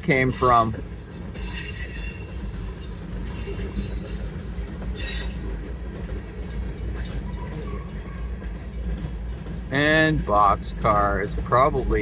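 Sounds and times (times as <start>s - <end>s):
train wheels rumbling on rail: 0.0s - 12.0s
high-pitched wheel squeal: 5.0s - 5.5s.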